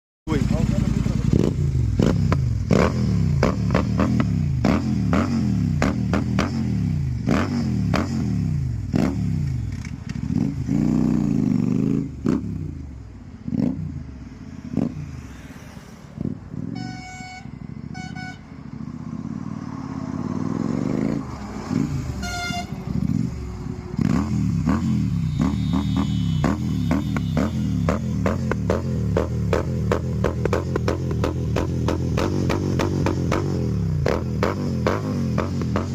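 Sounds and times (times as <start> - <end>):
motorcycle engine revving: 0.3 - 16.8, 18.7 - 35.9
vehicle horn honking: 16.7 - 18.5, 22.2 - 22.9, 25.0 - 28.2.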